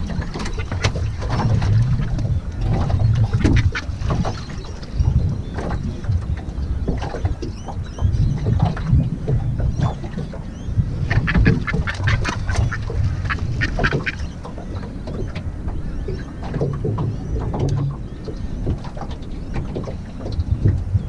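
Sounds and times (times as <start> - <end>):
low rumble of wind or water: 0.0 - 21.0
bird harsh quacking calls: 11.1 - 14.3.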